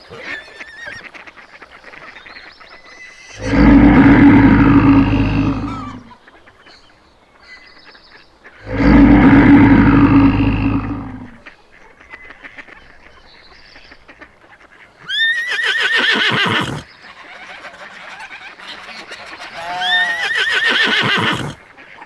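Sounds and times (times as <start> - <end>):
loud warbling animal calls: 3.2 - 6.2, 8.6 - 11.5, 15.1 - 21.6.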